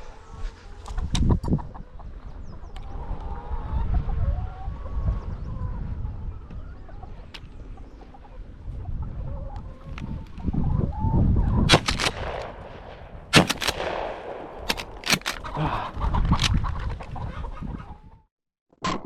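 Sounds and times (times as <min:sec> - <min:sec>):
chickens clucking: 0:00.1 - 0:11.7, 0:14.7 - 0:18.2
sharp clicks or knocks: 0:13.4 - 0:15.6.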